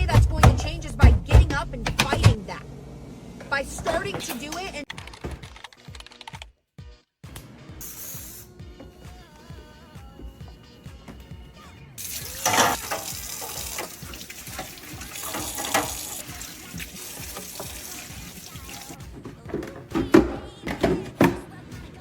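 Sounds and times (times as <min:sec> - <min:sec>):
tap water running into sink: 0:12.0 - 0:19.0
items clattering in sink: 0:12.0 - 0:21.6.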